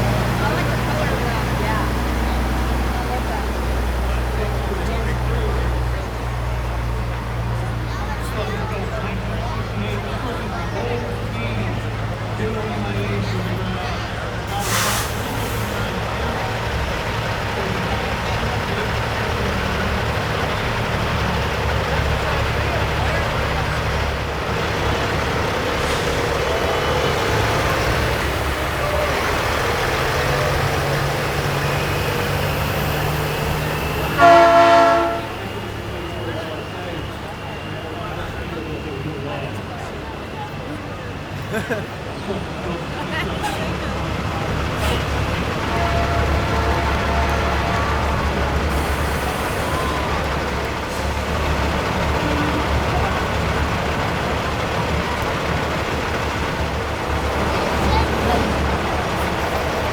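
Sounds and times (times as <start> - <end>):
crowd chatter: 0.0 - 59.9
diesel truck engines rumbling: 0.0 - 59.9
loud air horn blast: 33.3 - 35.7, 44.8 - 50.2.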